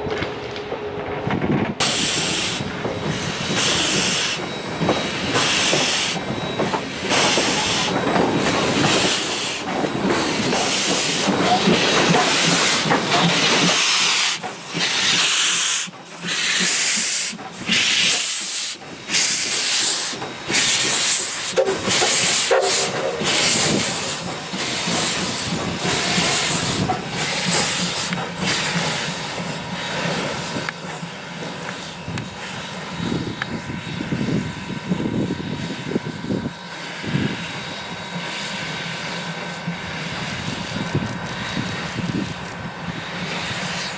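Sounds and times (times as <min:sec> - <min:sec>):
steam hissing: 0:01.8 - 0:35.9
steam locomotive exhaust chuffs: 0:01.8 - 0:43.9.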